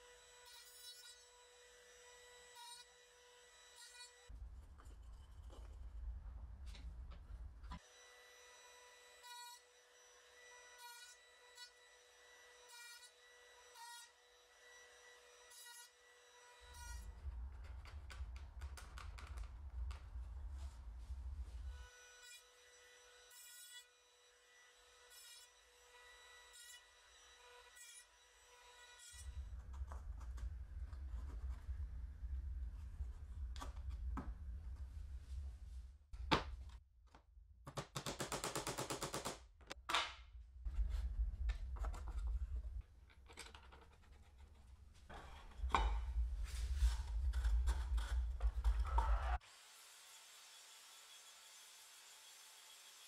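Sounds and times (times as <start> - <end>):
low rumble: 29.3 - 36.0, 40.3 - 43.1, 45.1 - 49.4.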